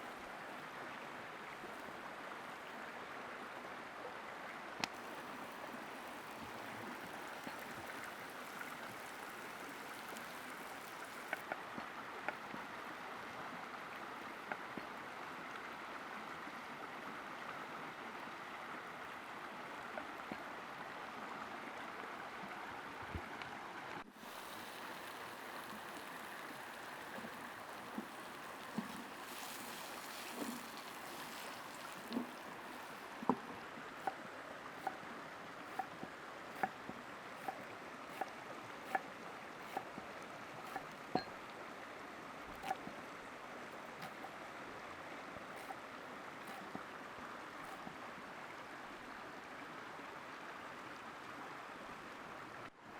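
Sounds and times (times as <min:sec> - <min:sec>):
soft pops and bubbling: 0:04.8 - 0:11.5, 0:24.2 - 0:33.4
fire crackling: 0:04.9 - 0:11.4, 0:24.1 - 0:33.2
food sizzling over campfire: 0:04.9 - 0:11.4, 0:24.1 - 0:33.2, 0:40.7 - 0:40.9.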